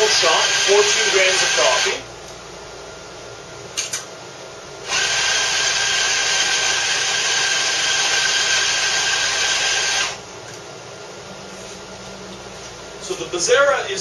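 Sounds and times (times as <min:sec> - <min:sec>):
coffee grinder motor grinding: 0:00.0 - 0:02.0, 0:04.9 - 0:10.2.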